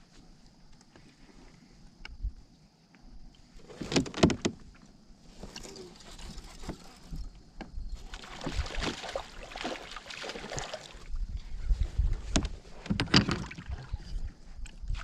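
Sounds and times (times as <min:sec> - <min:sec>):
water sounds: 0:08.0 - 0:11.3.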